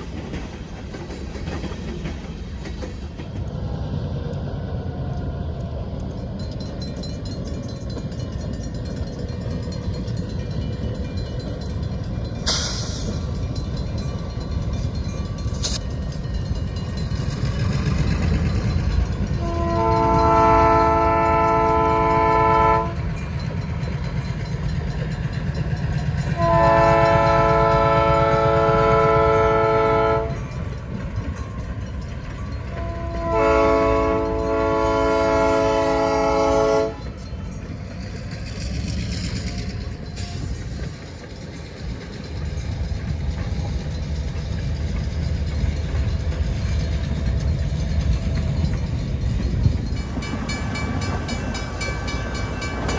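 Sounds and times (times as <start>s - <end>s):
diesel locomotive engine rumbling: 0.0s - 52.9s
locomotive air horn blasts: 19.4s - 23.0s, 26.4s - 30.4s, 32.8s - 37.2s.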